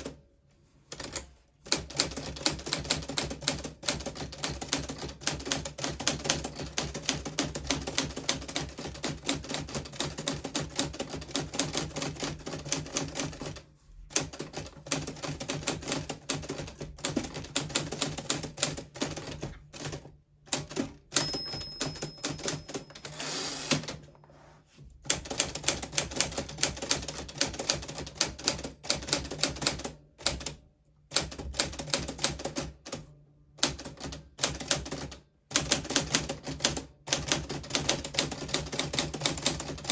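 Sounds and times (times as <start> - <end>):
typewriter margin bell ringing: 21.1 - 24.0
typewriter carriage return: 21.2 - 24.1.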